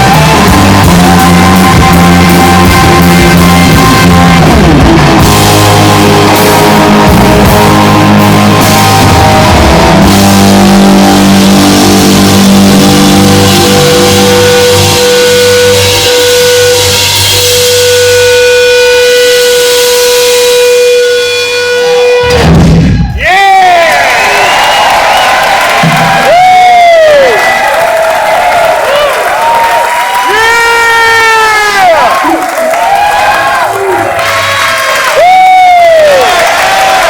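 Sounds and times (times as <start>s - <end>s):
electric guitar: 0.0s - 23.0s
drums: 0.0s - 37.0s.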